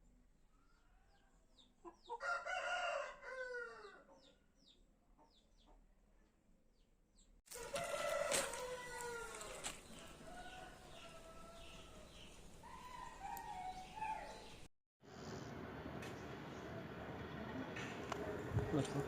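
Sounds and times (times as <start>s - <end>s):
rooster crowing: 2.2s - 4.0s, 7.5s - 14.4s.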